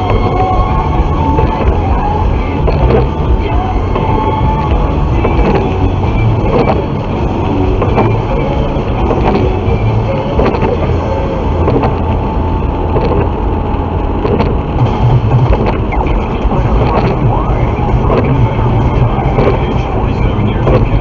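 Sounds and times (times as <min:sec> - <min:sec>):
vehicle rumble: 0:00.0 - 0:21.0
scattered clicks: 0:10.3 - 0:11.0, 0:12.9 - 0:13.3, 0:14.2 - 0:21.0.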